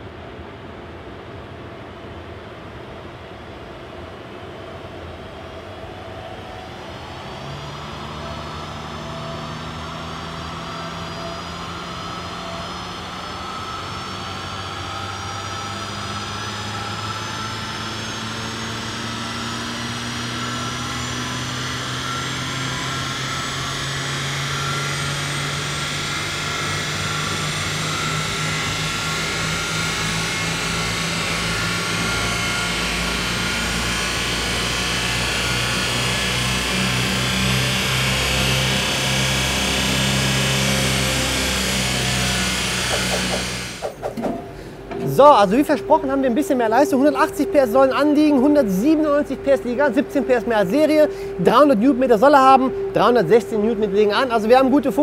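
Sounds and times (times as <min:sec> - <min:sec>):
rising whine: 0:00.0 - 0:55.0
car engine revving under load: 0:07.2 - 0:55.0.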